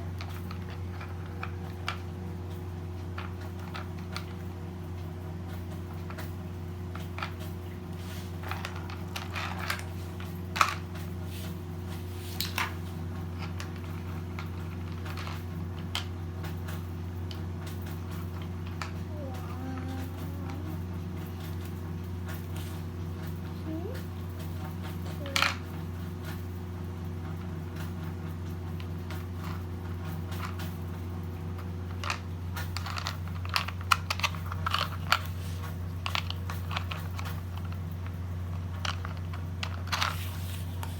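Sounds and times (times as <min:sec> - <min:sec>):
steady low hum: 0:00.0 - 0:40.9
toy blocks clicking and clattering: 0:00.1 - 0:02.2, 0:03.2 - 0:04.4, 0:06.9 - 0:07.6, 0:08.3 - 0:11.1, 0:12.4 - 0:22.4, 0:23.6 - 0:26.4, 0:28.8 - 0:30.8, 0:31.6 - 0:40.9.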